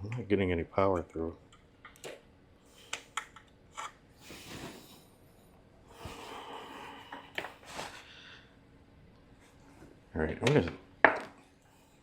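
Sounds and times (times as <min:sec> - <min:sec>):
small clicks and taps: 0:00.9 - 0:02.2
person breathing: 0:04.1 - 0:08.6.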